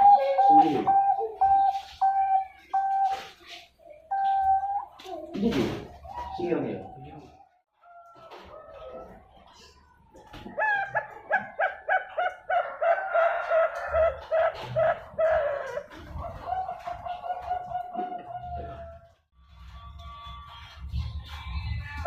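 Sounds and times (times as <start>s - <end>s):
dove cooing: 0.0s - 5.3s, 10.5s - 19.1s.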